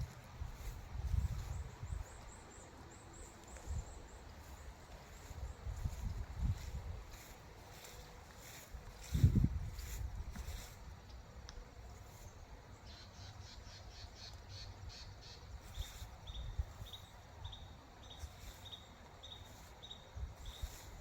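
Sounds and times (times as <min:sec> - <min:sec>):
low wind rumble: 0:00.0 - 0:11.0.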